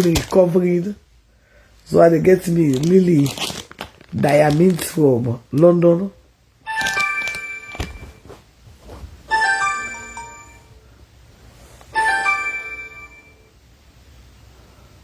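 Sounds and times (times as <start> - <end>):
mobile phone ringtone chiming: 6.7 - 8.1, 9.3 - 10.8, 12.0 - 13.5.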